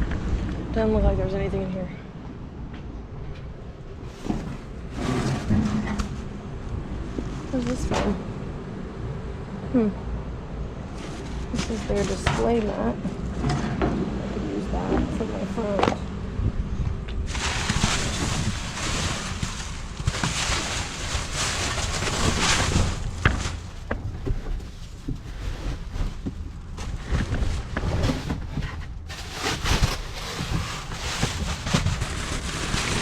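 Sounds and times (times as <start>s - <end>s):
wind buffeting microphone: 14.0s - 20.1s.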